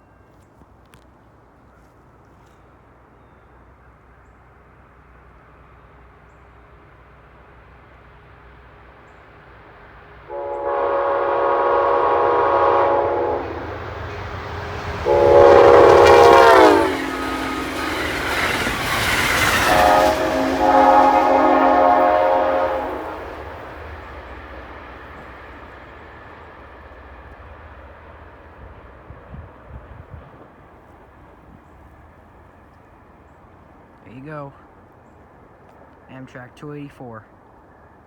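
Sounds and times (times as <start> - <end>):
train rumbling past: 2.9 - 36.6
locomotive horn blasts: 10.3 - 18.4, 19.4 - 23.8.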